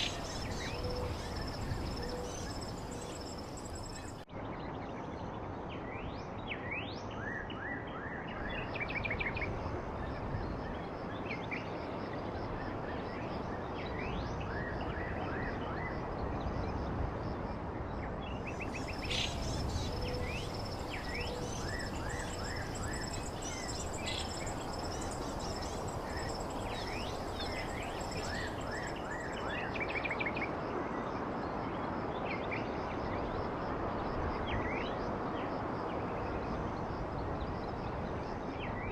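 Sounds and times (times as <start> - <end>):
small birds chirping: 0.0 - 4.2, 18.5 - 29.7
outdoor background hiss: 0.0 - 7.2, 8.2 - 38.9.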